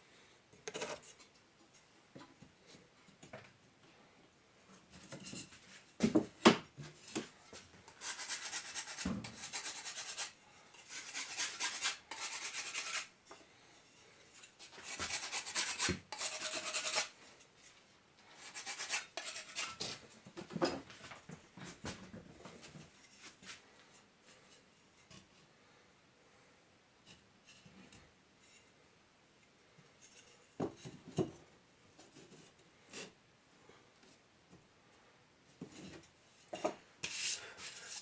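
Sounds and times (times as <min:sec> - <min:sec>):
scraping a brick: 0:08.0 - 0:13.1, 0:14.7 - 0:17.2, 0:18.4 - 0:19.9.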